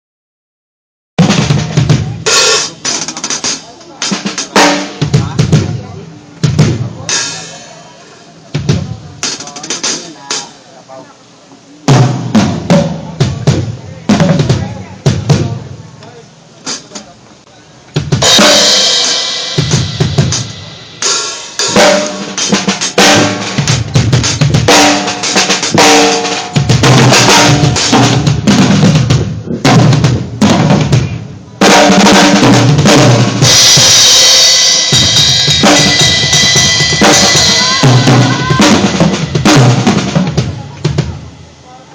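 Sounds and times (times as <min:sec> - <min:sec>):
drum kit playing: 0:01.2 - 0:10.6, 0:11.8 - 0:15.9, 0:16.6 - 0:17.2, 0:17.8 - 0:41.6
bass drum thumps: 0:12.0 - 0:15.7, 0:26.6 - 0:33.9
snare drum hits: 0:21.6 - 0:29.0.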